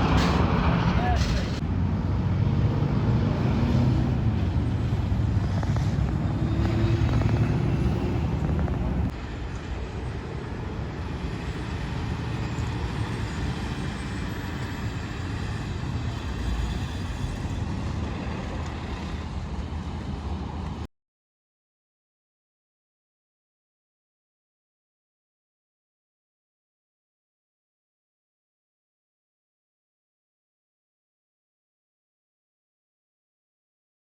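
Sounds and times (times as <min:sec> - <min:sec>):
road traffic: 0:00.0 - 0:20.9.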